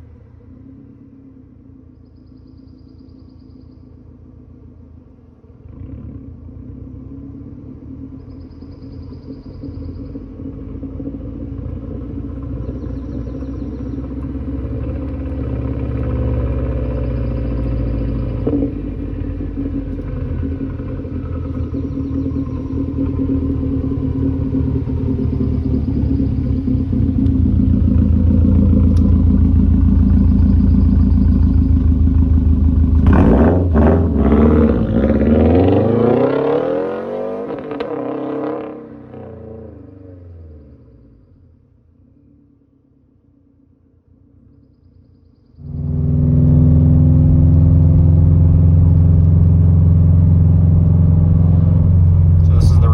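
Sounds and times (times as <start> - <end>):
raspy car engine revving: 12.4 - 39.8, 45.6 - 52.9.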